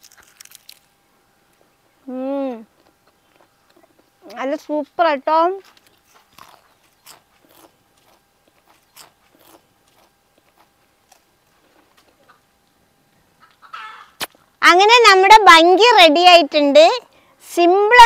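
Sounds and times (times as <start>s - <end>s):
person chewing crisp food: 0.0s - 0.9s, 2.7s - 4.1s, 5.7s - 12.4s.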